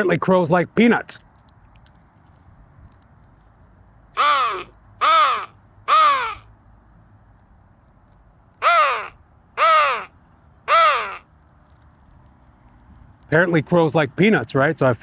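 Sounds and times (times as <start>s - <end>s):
crow call caws: 4.2s - 6.4s, 8.6s - 10.1s, 10.7s - 11.3s.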